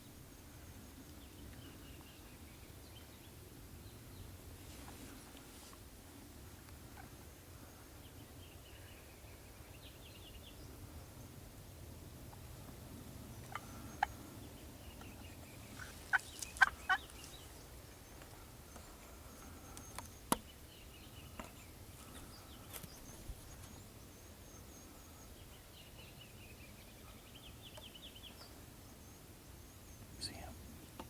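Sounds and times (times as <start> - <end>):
songbirds chirping: 0.0 - 31.0
wild turkey gobbling: 15.8 - 17.1.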